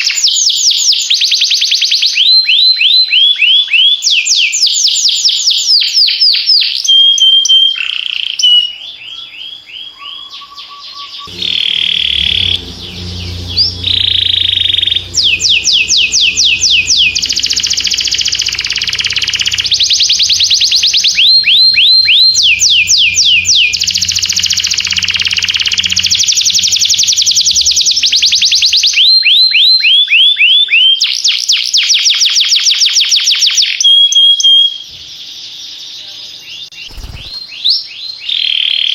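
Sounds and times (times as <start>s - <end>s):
canary singing trills: 9.8s - 28.9s, 36.5s - 38.2s
low steady drone: 11.3s - 28.8s.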